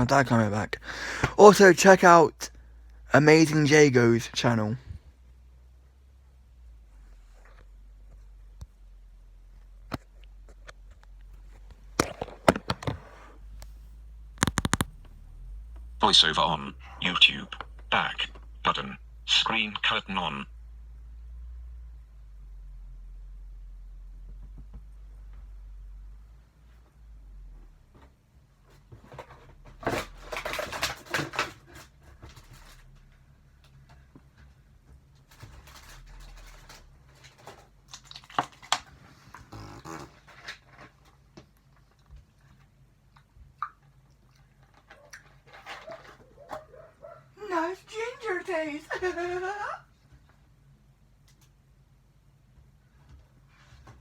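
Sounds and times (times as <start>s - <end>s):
sharp clicks and knocks: 14.4s - 15.1s
rustling handling noises: 27.9s - 43.1s, 44.4s - 48.8s.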